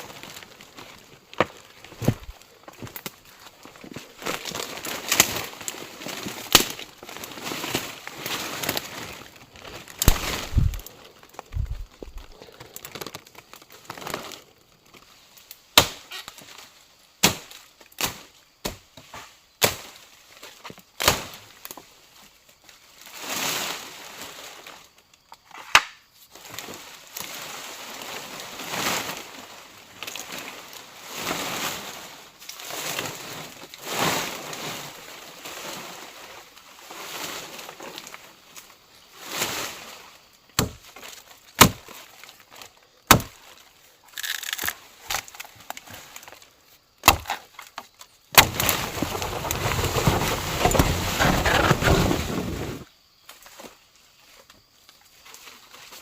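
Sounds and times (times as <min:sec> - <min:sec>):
rustling: 0:00.0 - 0:14.4, 0:47.2 - 0:52.9
wood knocking and cracking: 0:01.3 - 0:03.1, 0:41.6 - 0:41.8, 0:43.1 - 0:43.4, 0:47.0 - 0:52.2.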